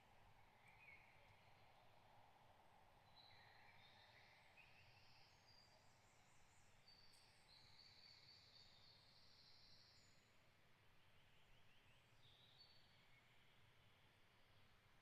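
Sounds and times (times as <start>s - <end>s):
songbirds singing: 3.1s - 10.4s, 11.0s - 13.9s.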